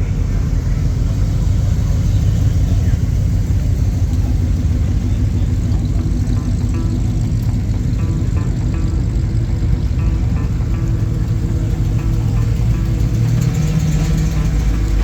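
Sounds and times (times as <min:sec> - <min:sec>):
car engine driving past: 0:00.0 - 0:15.0.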